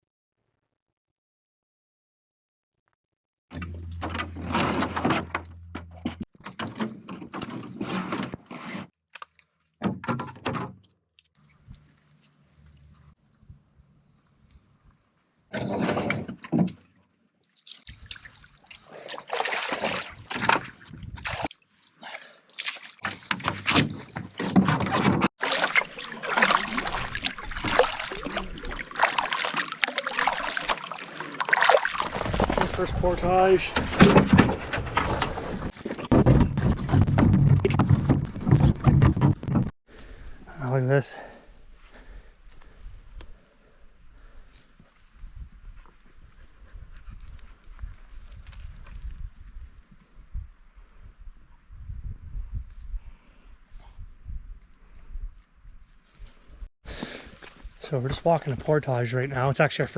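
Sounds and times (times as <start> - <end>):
high chirps: 11.4 - 15.4
water splashing and sloshing: 15.6 - 39.7.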